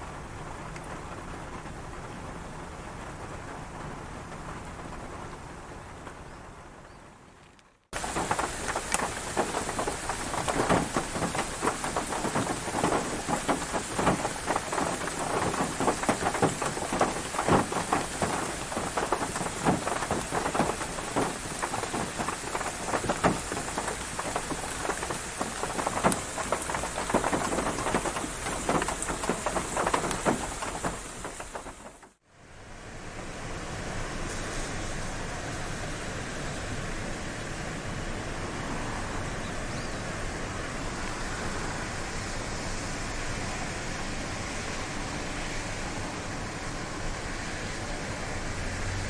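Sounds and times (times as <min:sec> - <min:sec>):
raindrops striking close by: 0:00.0 - 0:32.2
rain falling: 0:00.0 - 0:49.0.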